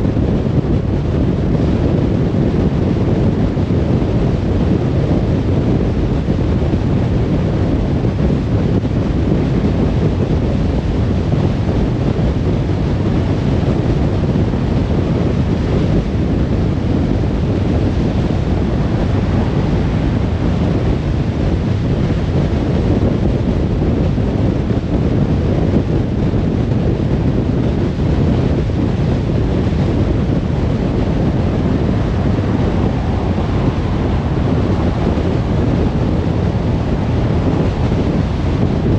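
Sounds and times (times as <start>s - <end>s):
car driving road noise: 0.0s - 38.9s.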